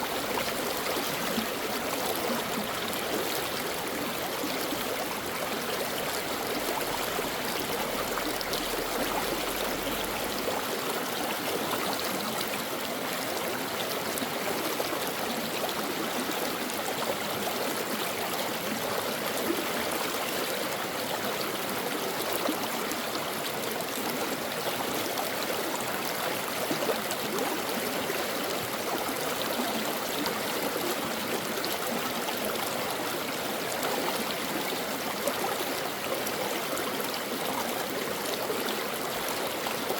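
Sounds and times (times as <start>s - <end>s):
brook babbling: 0.0s - 39.9s.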